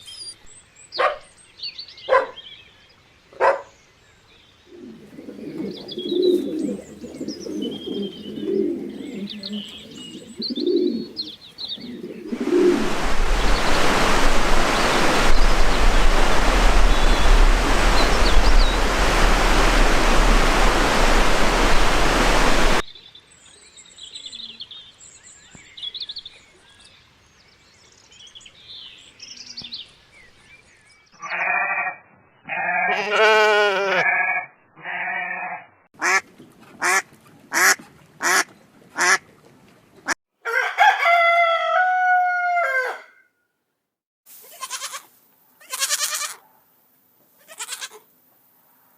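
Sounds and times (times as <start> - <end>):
loud rushing noise: 12.3 - 22.8
goat or sheep bleating: 31.2 - 31.9, 32.5 - 35.7, 44.4 - 46.4, 47.4 - 48.0
duck quacks: 36.0 - 36.2, 36.8 - 39.2.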